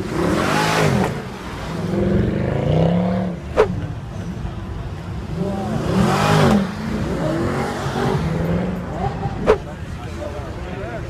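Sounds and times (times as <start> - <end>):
car engine revving hard: 0.0 - 3.6, 5.3 - 9.7.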